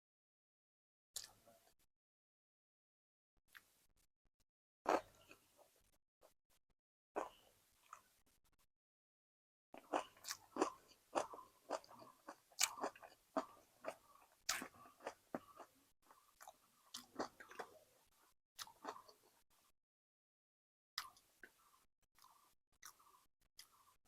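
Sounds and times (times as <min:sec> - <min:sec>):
person chewing food: 0:04.9 - 0:05.8, 0:07.2 - 0:08.1, 0:09.8 - 0:19.4, 0:21.0 - 0:24.0.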